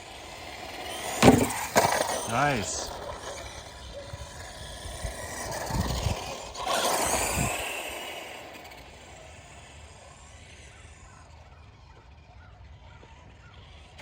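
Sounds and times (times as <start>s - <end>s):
rc truck tyre and motor noise: 0.0s - 14.0s
thumps: 1.1s - 2.1s.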